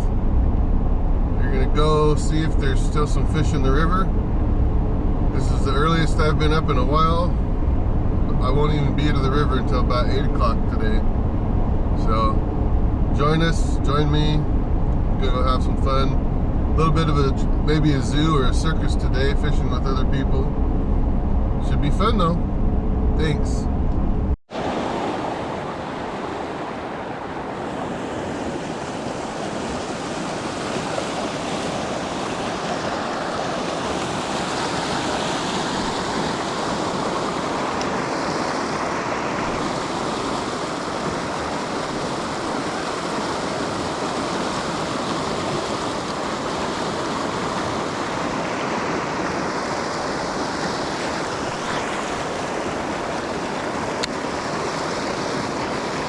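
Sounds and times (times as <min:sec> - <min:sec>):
river water rushing: 0:24.5 - 0:56.0.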